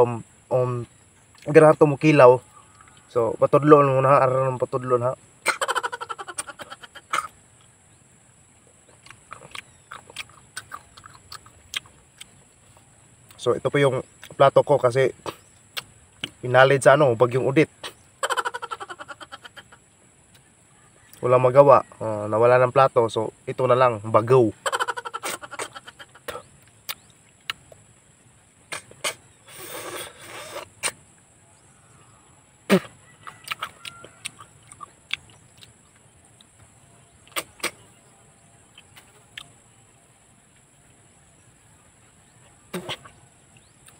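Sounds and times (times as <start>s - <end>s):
wet chewing clicks: 8.6s - 14.4s, 15.3s - 16.4s, 25.2s - 28.0s, 32.8s - 36.6s, 37.2s - 37.9s, 38.6s - 39.6s, 42.4s - 43.9s
slurping snail from shell: 28.7s - 31.0s.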